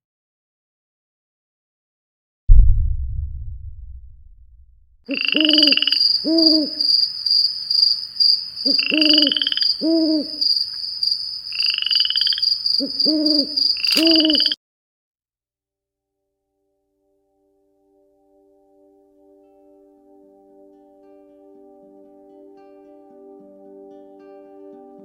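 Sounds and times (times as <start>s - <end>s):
low hooting calls: 5.1s - 6.9s, 8.6s - 10.4s, 11.6s - 14.6s
rising animal calls: 5.1s - 6.9s, 8.7s - 10.4s, 11.6s - 14.6s
high insect whine: 5.1s - 14.6s.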